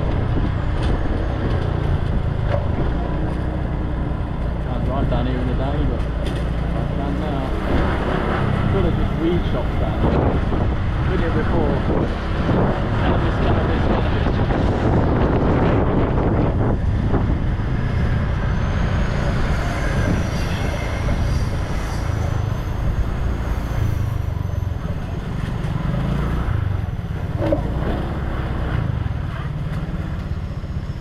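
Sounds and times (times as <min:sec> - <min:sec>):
road rumble: 0:00.0 - 0:31.0
wind buffeting microphone: 0:07.5 - 0:29.2.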